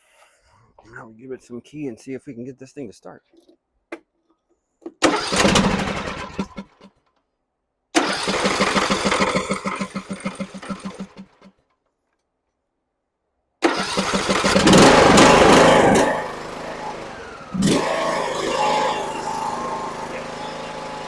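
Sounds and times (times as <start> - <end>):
mower engine cranking: 4.9 - 6.9, 8.0 - 11.5, 13.6 - 21.0
mower engine running: 5.0 - 6.7, 8.0 - 11.4, 13.6 - 21.0.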